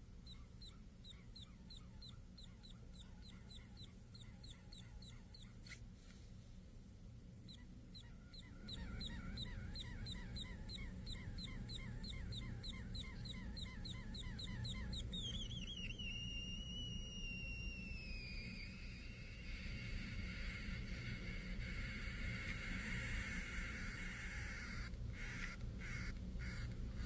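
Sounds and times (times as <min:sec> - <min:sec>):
steady low hum: 0:00.0 - 0:27.0
plasma tweeter chirping: 0:07.5 - 0:19.8.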